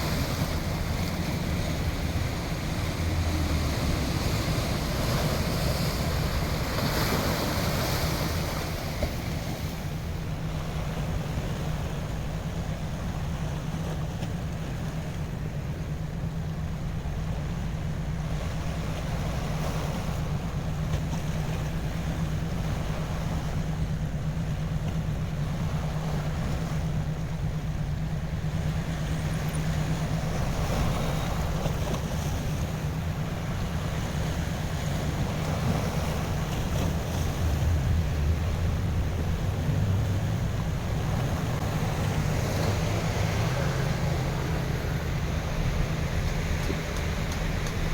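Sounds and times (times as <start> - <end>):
ocean waves washing in: 0.0 - 47.9
steady low hum: 0.0 - 47.9
wind on microphone: 28.4 - 47.9.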